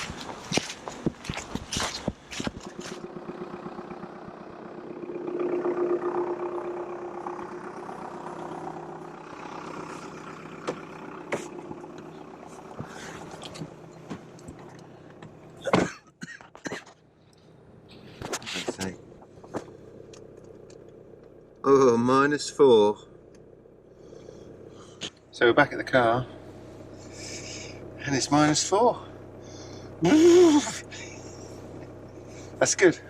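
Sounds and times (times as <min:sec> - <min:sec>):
footsteps: 0:00.0 - 0:03.0, 0:10.7 - 0:11.7
vehicle engine humming: 0:00.0 - 0:33.0.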